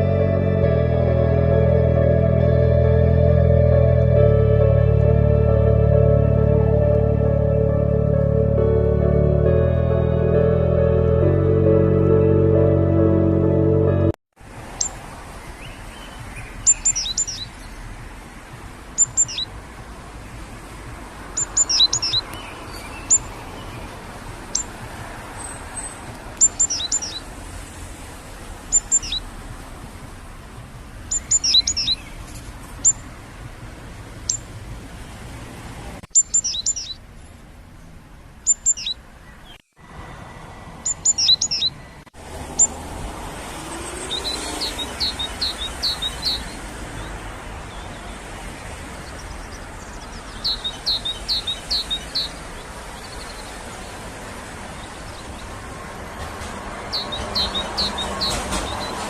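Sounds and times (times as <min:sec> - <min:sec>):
small birds chirping: 0:14.8 - 0:18.0, 0:19.0 - 0:19.5, 0:21.3 - 0:27.3, 0:28.7 - 0:29.3, 0:31.0 - 0:33.2, 0:34.2 - 0:34.6, 0:36.1 - 0:39.7, 0:40.8 - 0:42.8, 0:43.8 - 0:59.0.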